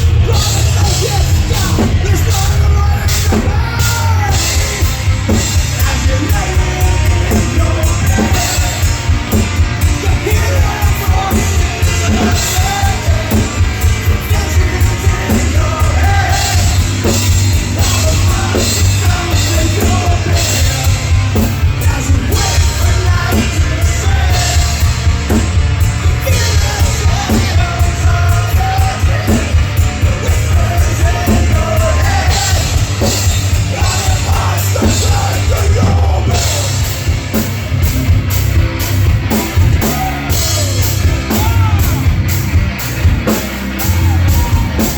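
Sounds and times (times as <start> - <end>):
drum kit fast beat: 0.0 - 44.9
heavy rock band playing: 0.0 - 44.9.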